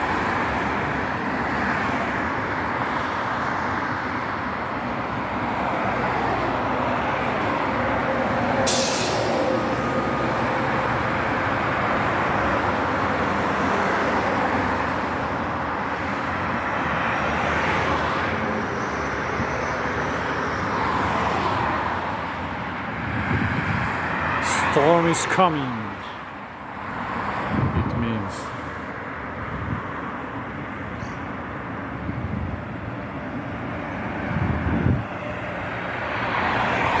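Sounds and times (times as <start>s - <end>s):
steady outdoor background noise: 0.0s - 37.0s
wind buffeting microphone: 23.0s - 24.0s, 34.2s - 35.1s.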